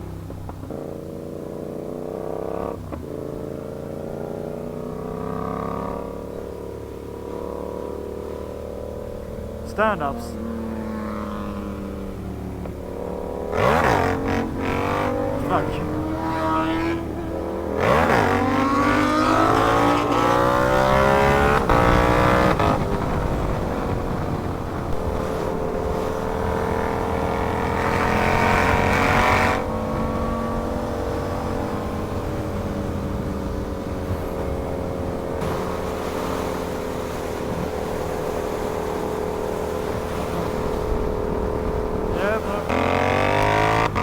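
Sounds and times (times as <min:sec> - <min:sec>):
motorcycle engine accelerating: 0:00.0 - 0:44.0
wind on microphone: 0:13.0 - 0:42.7.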